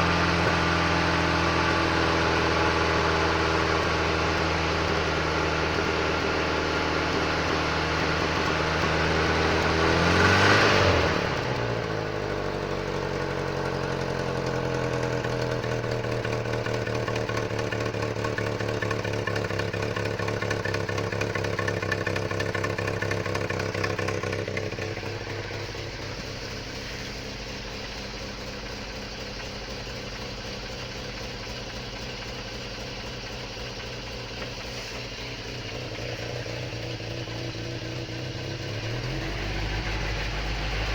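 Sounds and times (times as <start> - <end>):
engine revving: 0.0 - 28.0, 33.1 - 40.9
van engine idling: 0.0 - 40.9.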